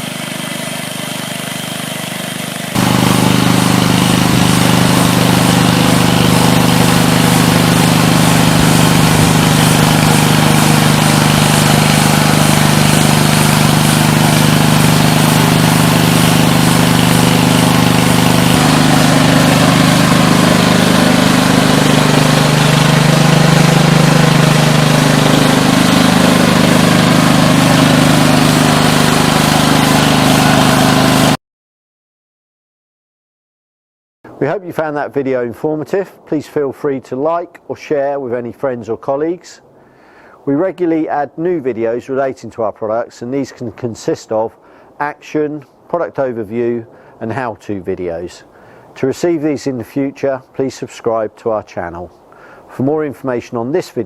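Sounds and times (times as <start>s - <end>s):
engine running: 0.0s - 31.4s
rotating brush: 2.7s - 31.4s.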